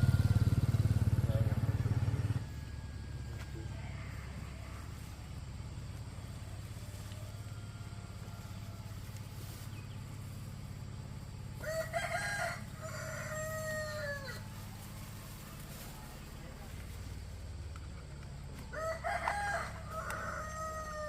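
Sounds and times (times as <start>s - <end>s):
steady low hum: 0.0s - 18.8s
rooster crowing: 2.4s - 5.1s, 6.2s - 9.2s, 11.6s - 14.8s, 18.6s - 21.0s.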